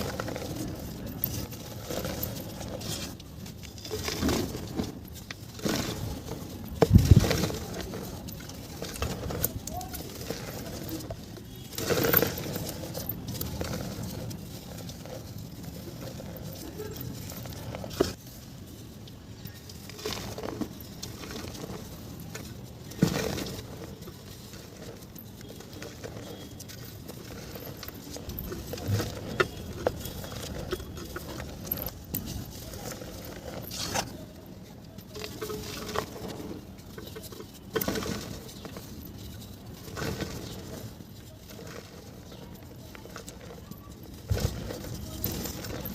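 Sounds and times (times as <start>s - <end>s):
mud crumbling by hand: 0.0s - 18.2s
mud crumbling and crunching: 0.0s - 45.9s.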